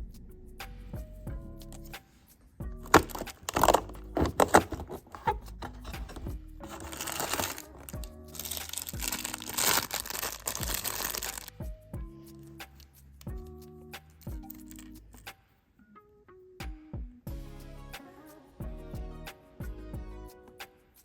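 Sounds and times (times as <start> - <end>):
background music: 0.0 - 21.0
packaging crinkling and tearing: 2.9 - 11.5.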